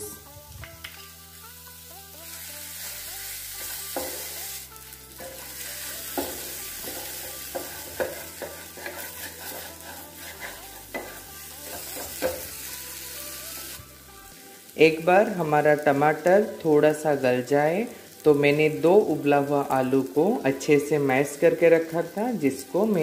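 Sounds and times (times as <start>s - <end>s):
tomatoes sizzling in hot oil: 0.0s - 23.0s
spatula scraping pan: 5.2s - 12.5s.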